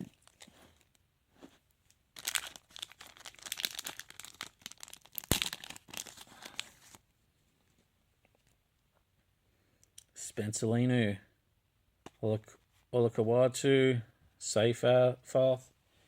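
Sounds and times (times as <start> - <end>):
foil wrapper tearing and crinkling: 2.2 - 7.0.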